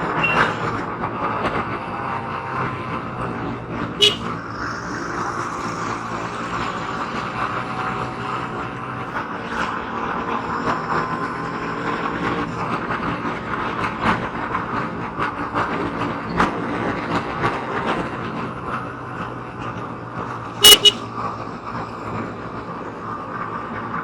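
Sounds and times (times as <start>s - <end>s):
road traffic: 0.0s - 24.0s
vehicle horn honking: 0.1s - 0.7s, 4.0s - 4.4s, 20.6s - 21.2s.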